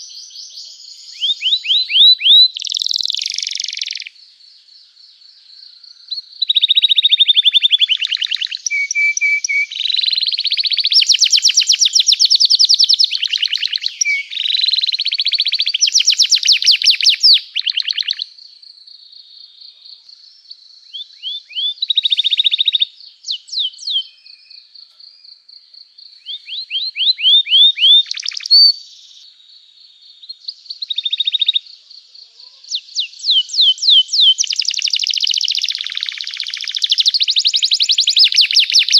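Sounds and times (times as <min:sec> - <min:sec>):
canary trills and chirps: 0:00.0 - 0:04.1, 0:06.4 - 0:18.3, 0:26.2 - 0:29.2, 0:30.3 - 0:38.9.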